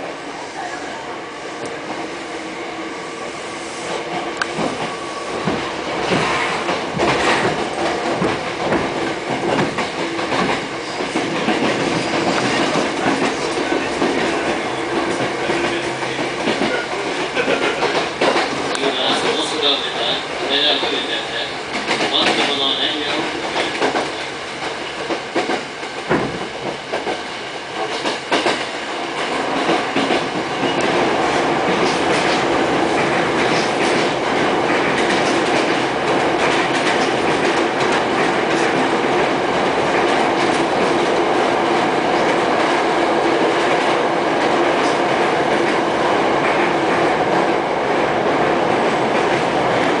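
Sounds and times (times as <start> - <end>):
train wheels rumbling on rail: 0.0 - 50.0
rail-joint clicks: 3.9 - 31.0, 31.6 - 41.3.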